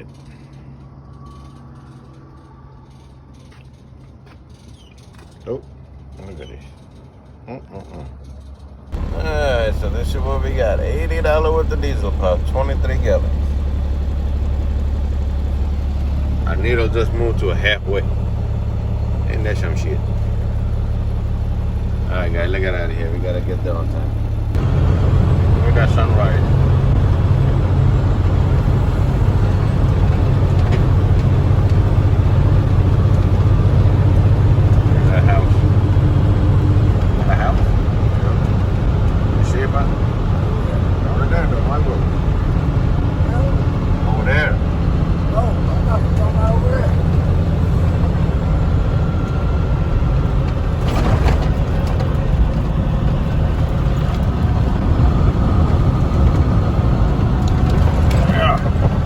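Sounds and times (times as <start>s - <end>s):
road noise: 0.0s - 59.0s
diesel truck engine running: 8.3s - 59.0s.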